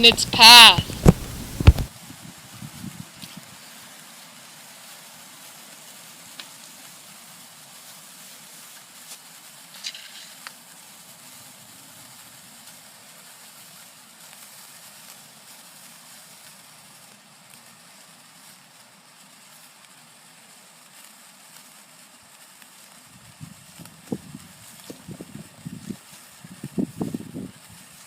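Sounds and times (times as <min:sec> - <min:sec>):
faint steady hiss: 0:00.0 - 0:01.9.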